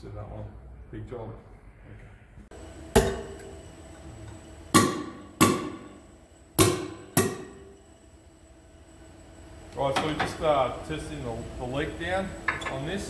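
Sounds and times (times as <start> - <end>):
sharp metallic knocks ringing: 4.8 - 5.9, 6.6 - 7.6.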